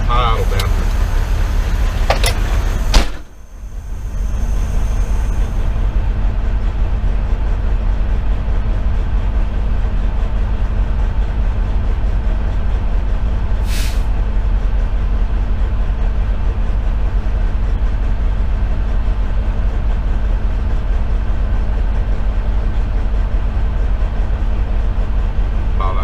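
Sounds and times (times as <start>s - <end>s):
diesel engine idling: 0.0s - 26.0s
sharp knock: 2.9s - 3.3s
short hiss: 13.6s - 14.1s.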